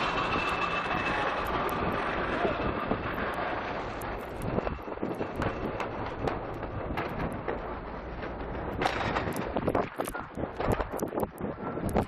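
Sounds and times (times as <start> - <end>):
rumbling vehicle noise: 0.0 - 12.0
small clicks: 9.3 - 12.0.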